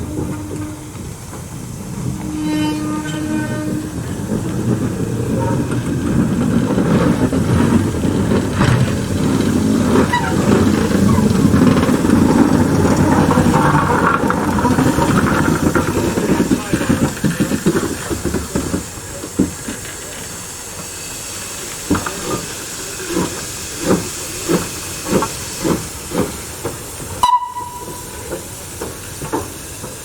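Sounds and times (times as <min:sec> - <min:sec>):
steam locomotive whistle: 0:00.0 - 0:01.0, 0:02.1 - 0:04.1, 0:27.2 - 0:28.2
locomotive and train rumbling: 0:00.0 - 0:30.0.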